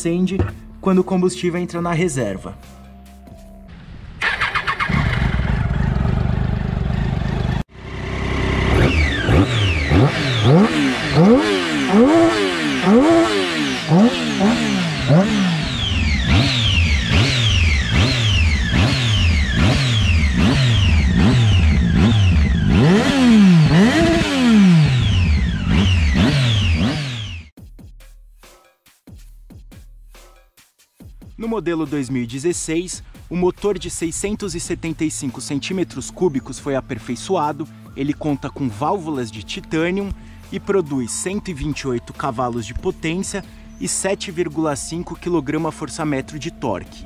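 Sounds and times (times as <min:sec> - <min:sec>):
motorcycle engine starting and idling: 0:03.7 - 0:27.5
motorcycle engine revving in blips: 0:04.2 - 0:27.5.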